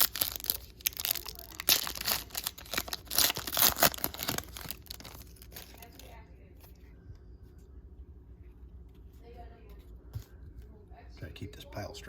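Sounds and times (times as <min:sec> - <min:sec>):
foil wrapper crackling: 0:00.0 - 0:06.2.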